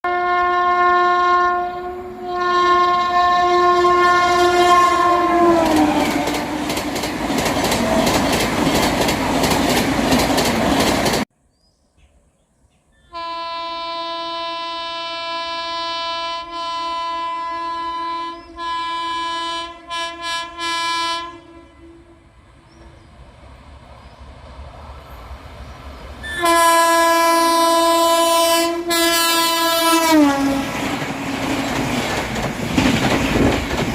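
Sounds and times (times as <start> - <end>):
train horn blasts: 0.0 - 6.9, 13.0 - 22.9, 26.2 - 31.6
short train horn toots: 0.1 - 6.7, 13.0 - 22.9, 26.2 - 30.8
train coaches clattering past: 4.3 - 11.2, 22.5 - 33.9.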